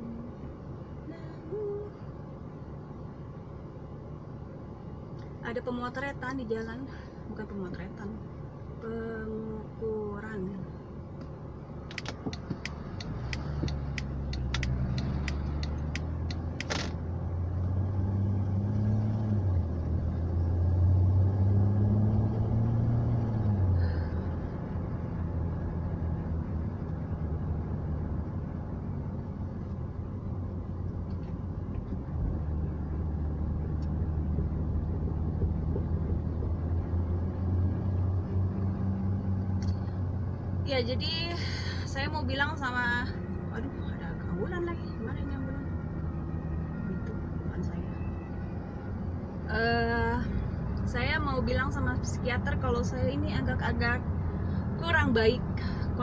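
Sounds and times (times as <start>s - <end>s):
car engine accelerating: 11.2s - 56.0s
sharp clicks: 11.9s - 17.0s.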